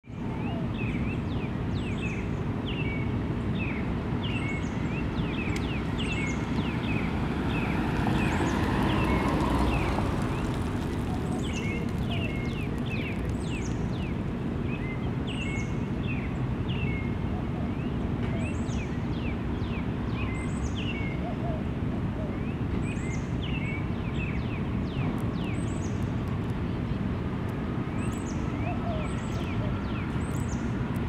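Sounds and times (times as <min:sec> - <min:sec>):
low rumble of road traffic: 0:00.0 - 0:31.0
small birds chirping: 0:00.7 - 0:17.2.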